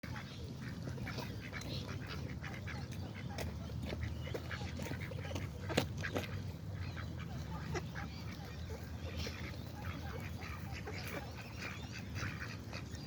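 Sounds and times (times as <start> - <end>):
wetland birds calling: 0.0 - 13.0.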